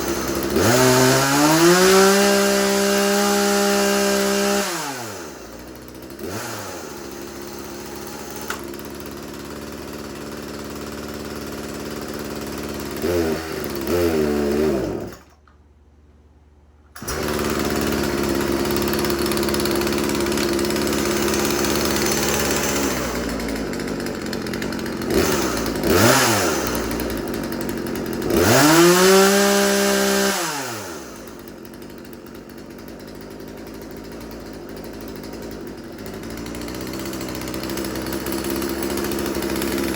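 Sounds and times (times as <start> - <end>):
chainsaw idling and revving: 0.0 - 15.6, 17.0 - 39.9.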